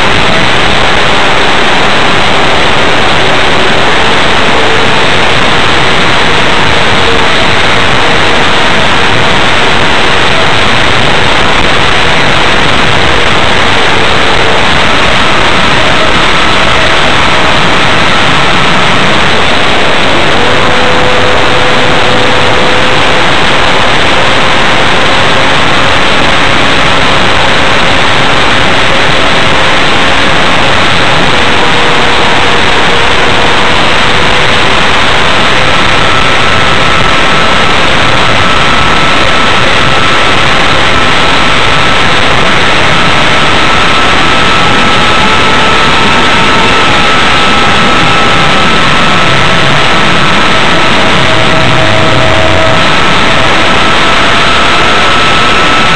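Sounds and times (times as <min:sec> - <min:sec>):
electric motor and propeller whine: 0:00.0 - 0:55.9
wind roaring over microphone: 0:00.0 - 0:55.9.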